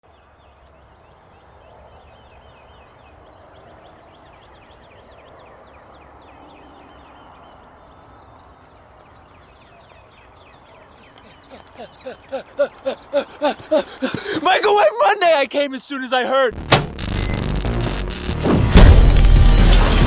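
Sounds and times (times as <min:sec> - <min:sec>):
birds chirping: 0:00.6 - 0:16.5.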